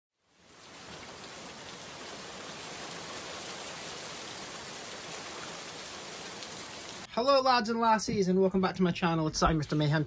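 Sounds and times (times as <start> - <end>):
steady rain falling: 0.2 - 7.1.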